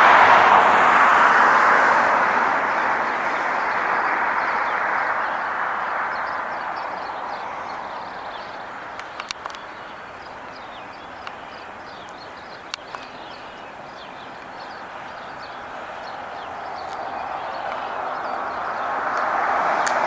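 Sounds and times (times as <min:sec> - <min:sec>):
road traffic hiss: 0:00.0 - 0:20.0
small birds chirping: 0:02.7 - 0:20.0
sharp clicks: 0:08.9 - 0:09.7, 0:12.0 - 0:13.4, 0:19.1 - 0:20.0.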